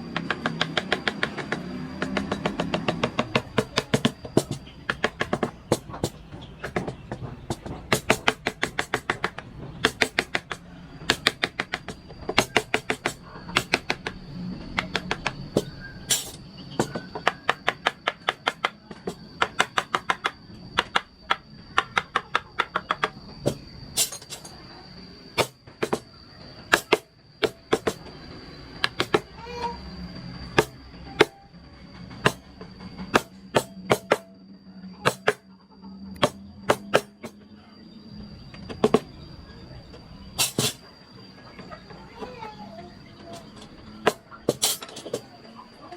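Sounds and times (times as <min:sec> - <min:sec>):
mallet tapping chisel into wood: 0:00.2 - 0:10.5.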